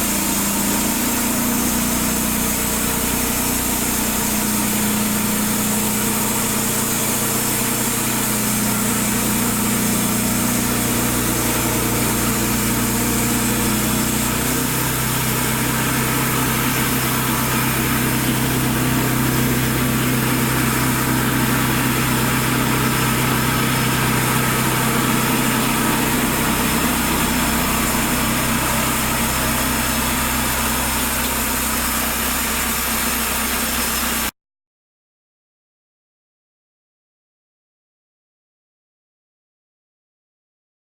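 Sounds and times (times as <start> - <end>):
sawmill petrol engine running: 0.0 - 34.3.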